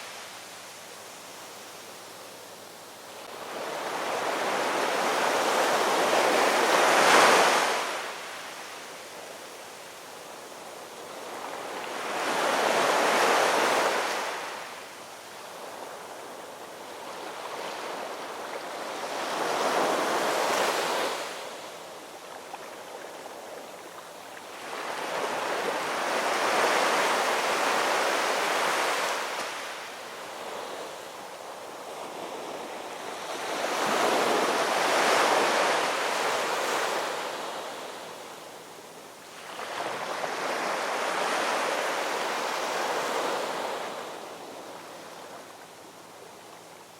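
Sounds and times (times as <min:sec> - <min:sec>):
ocean surf breaking on shore: 0:03.2 - 0:08.6, 0:24.5 - 0:38.4, 0:39.3 - 0:45.0.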